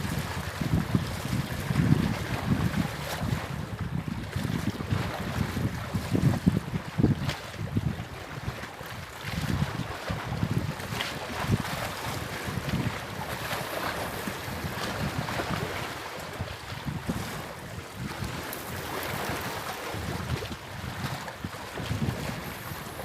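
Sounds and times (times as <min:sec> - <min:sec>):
wind rumbling on microphone: 0:00.0 - 0:23.0
rushing water: 0:07.8 - 0:23.0.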